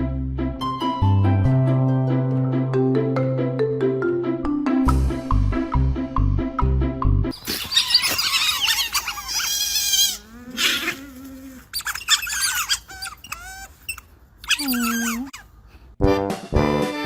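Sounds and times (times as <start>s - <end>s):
young animals squealing: 7.4s - 15.5s.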